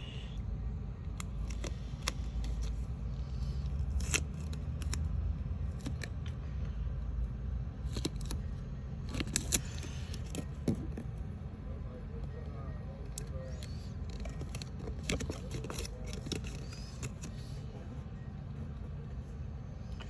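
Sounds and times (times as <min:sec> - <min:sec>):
scissors snipping paper: 0:03.8 - 0:05.1, 0:13.1 - 0:17.5.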